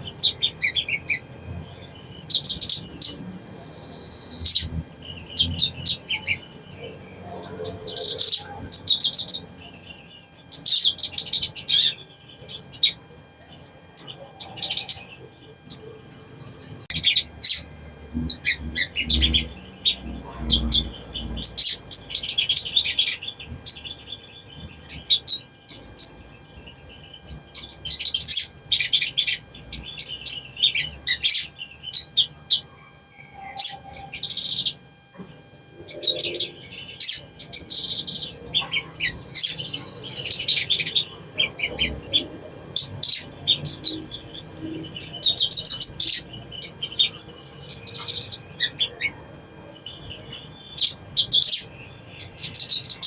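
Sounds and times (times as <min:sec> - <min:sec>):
bird twittering chirps and trills: 0:00.0 - 0:53.0.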